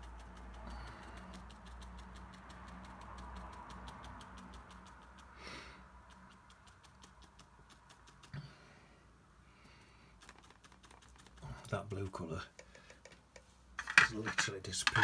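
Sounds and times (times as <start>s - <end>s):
quick even ticking: 0.0s - 8.4s, 10.2s - 11.4s
breath-like hiss: 5.3s - 6.0s.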